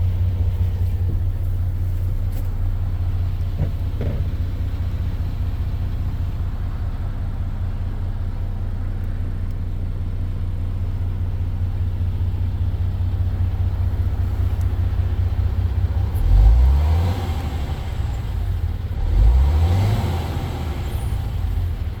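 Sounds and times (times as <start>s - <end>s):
truck diesel engine idling: 0.0s - 16.1s
engine revving: 15.9s - 22.0s.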